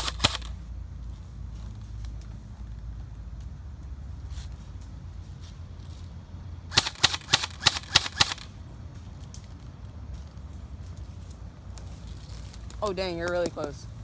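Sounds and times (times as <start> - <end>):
airsoft gun shots: 0.0 - 0.6, 6.7 - 8.5.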